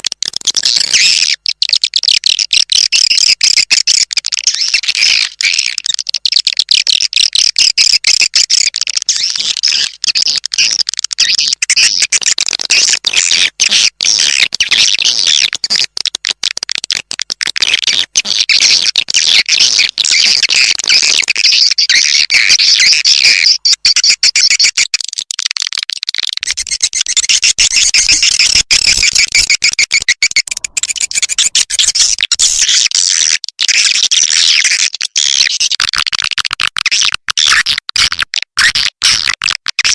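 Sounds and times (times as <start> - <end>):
swiftlets chirping and twittering: 18.8 - 25.0, 26.4 - 35.6.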